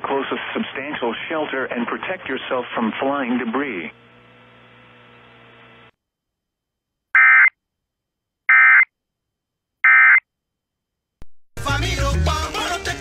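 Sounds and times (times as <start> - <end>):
emergency alert data tones: 7.2 - 7.6, 8.5 - 8.9, 9.8 - 10.2.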